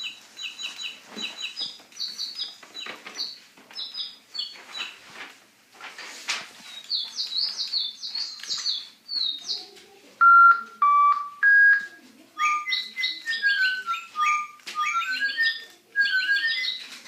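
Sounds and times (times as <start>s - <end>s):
toy bird chirps: 0.0s - 2.6s, 6.9s - 17.0s
toy bird whistle notes: 10.2s - 16.8s.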